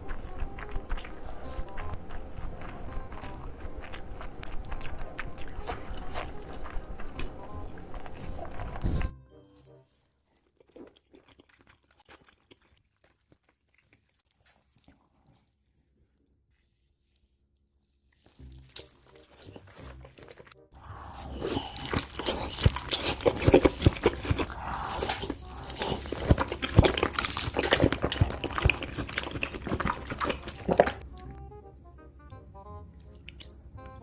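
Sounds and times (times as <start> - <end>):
close wet chewing: 0.0 - 9.1, 10.0 - 16.3, 17.0 - 31.4, 33.0 - 34.0
background music: 0.0 - 10.1, 18.4 - 34.0.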